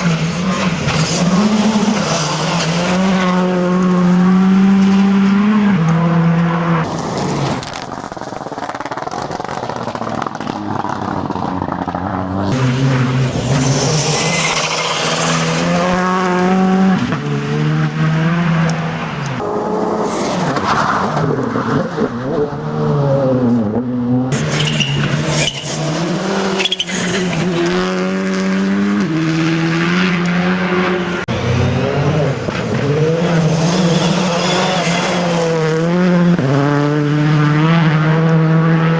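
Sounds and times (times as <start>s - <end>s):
rally car engine revving: 0.0s - 38.9s.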